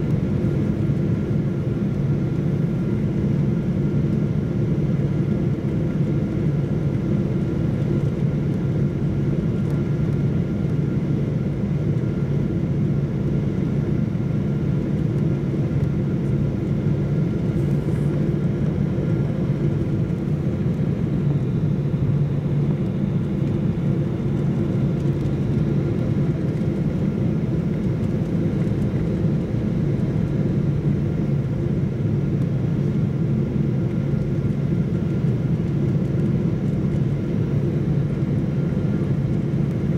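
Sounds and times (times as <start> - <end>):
jet cabin engine drone: 0.0 - 39.9.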